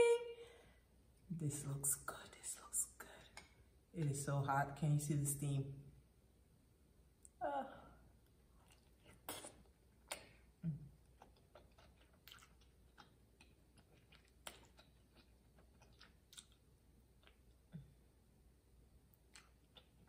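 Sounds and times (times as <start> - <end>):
close-miked chewing: 8.5 - 17.8, 19.1 - 20.0
wet mouth clicks and smacks: 8.6 - 10.4, 15.8 - 16.6.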